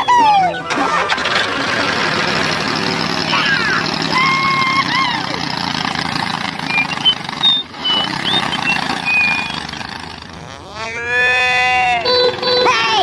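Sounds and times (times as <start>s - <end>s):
small tractor engine running: 0.5s - 10.8s, 12.0s - 13.0s
high bird chirps: 6.6s - 9.8s.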